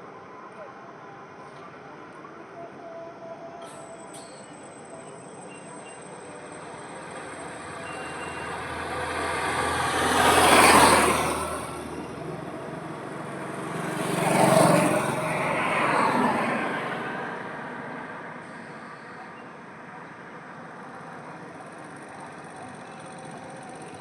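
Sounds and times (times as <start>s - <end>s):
vehicles passing on highway: 5.7s - 24.0s.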